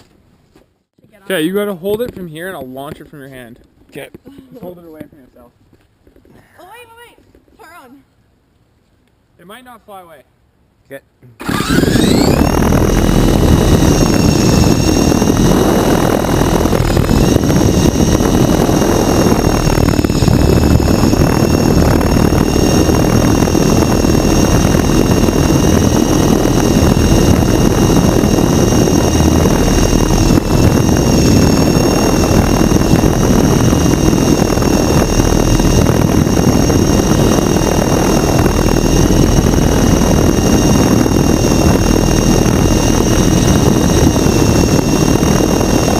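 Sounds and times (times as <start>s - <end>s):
rc helicopter motor whine: 11.4s - 45.9s
rotor blades rushing: 11.4s - 45.9s.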